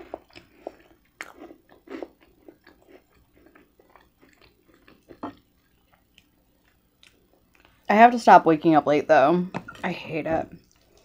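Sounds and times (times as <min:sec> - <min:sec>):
chewing crunchy bread: 0:00.0 - 0:07.9.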